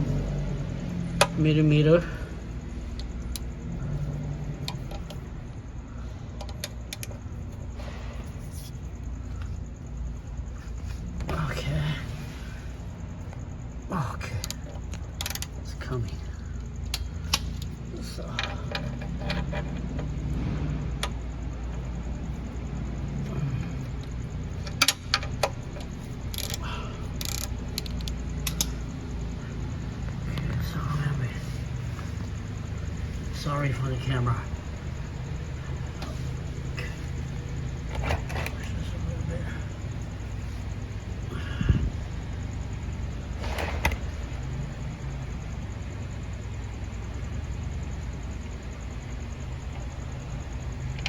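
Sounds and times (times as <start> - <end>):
low hum: 0.0 - 51.0
wrench clicking on metal: 26.3 - 28.8.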